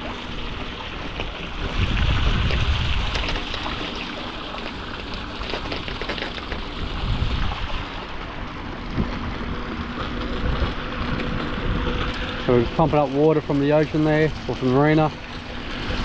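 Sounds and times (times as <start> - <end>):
water splashing into tanks: 0.0 - 16.0.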